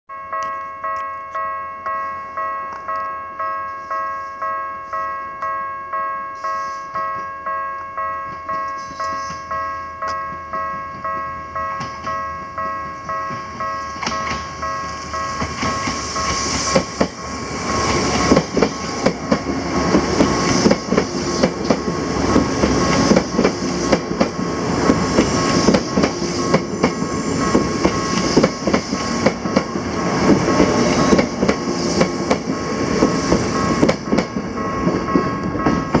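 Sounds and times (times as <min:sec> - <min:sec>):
warning bell dinging: 0:00.1 - 0:19.5
electric train passing: 0:00.3 - 0:36.0.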